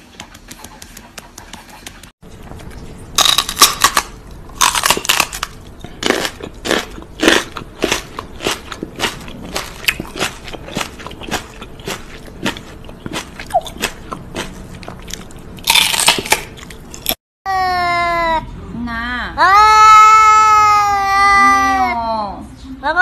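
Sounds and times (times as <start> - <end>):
crunchy chewing: 3.1 - 17.2.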